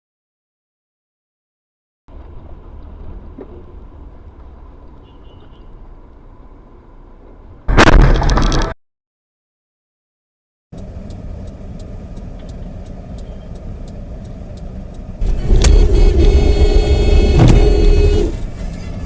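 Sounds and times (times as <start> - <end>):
vehicle road and engine rumble: 2.1 - 8.8, 10.7 - 19.0.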